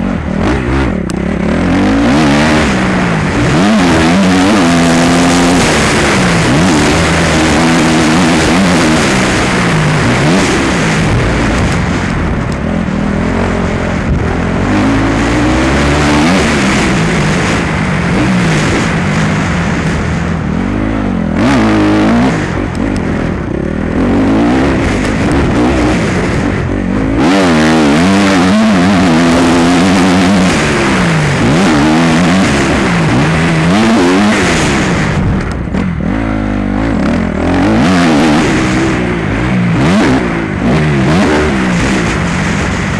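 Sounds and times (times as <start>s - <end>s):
motorbike engine revving: 0.0s - 42.9s.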